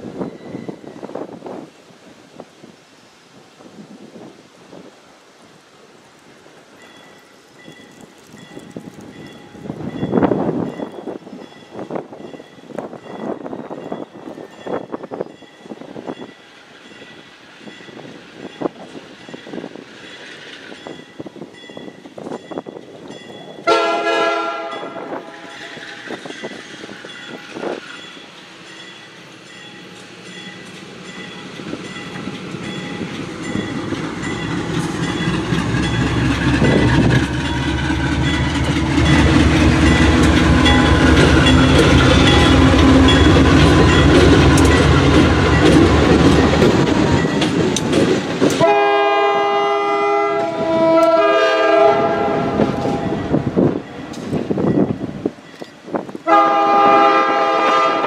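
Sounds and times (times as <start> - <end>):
diesel locomotive engine: 0.0 - 58.0
locomotive air horn: 23.6 - 25.5, 48.6 - 53.3, 56.2 - 58.0
wheels clacking over rail joints: 25.2 - 49.1.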